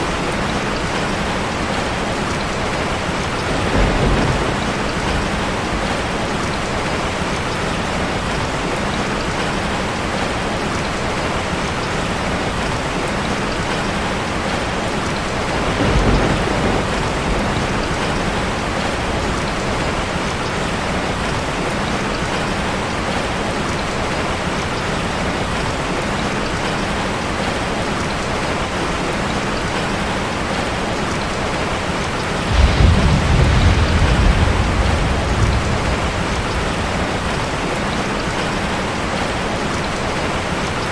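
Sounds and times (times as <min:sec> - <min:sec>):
rain drumming on metal roof: 0:00.0 - 0:40.9
low rumble: 0:32.5 - 0:37.6.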